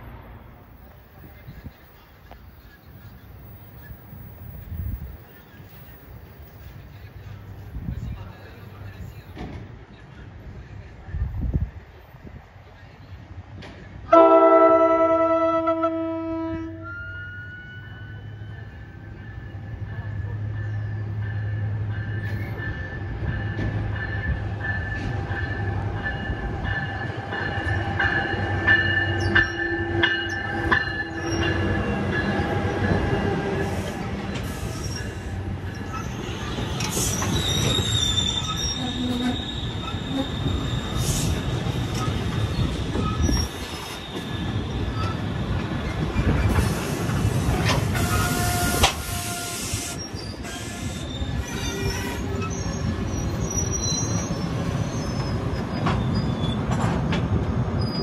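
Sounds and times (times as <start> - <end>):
train low rumble: 0.0 - 58.0
wheel squeal: 33.8 - 47.2, 47.9 - 56.9, 57.8 - 58.0.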